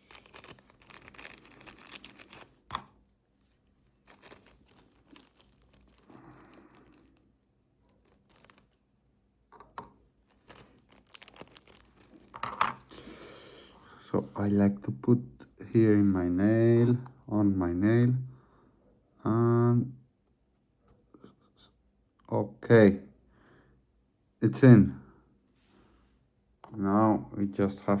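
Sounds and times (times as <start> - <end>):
hands rustling small parts: 0.0 - 8.9, 9.6 - 12.9.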